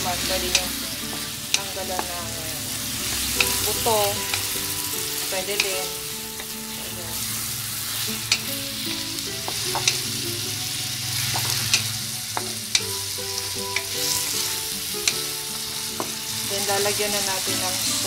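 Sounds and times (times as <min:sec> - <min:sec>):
chicken and onion sizzling: 0:00.0 - 0:18.0
wooden spatula knocking pan: 0:00.5 - 0:02.4, 0:09.4 - 0:10.0.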